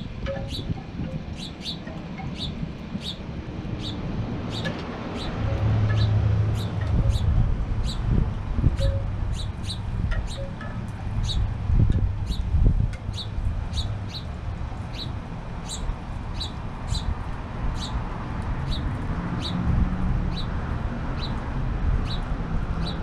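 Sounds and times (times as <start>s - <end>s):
small bird chirping: 0.3s - 3.2s, 3.8s - 8.1s, 8.8s - 10.6s, 13.1s - 14.3s.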